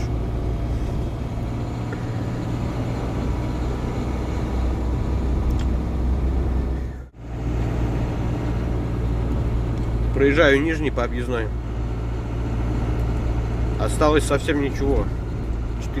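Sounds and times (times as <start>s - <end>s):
truck diesel engine drone: 0.0s - 16.0s.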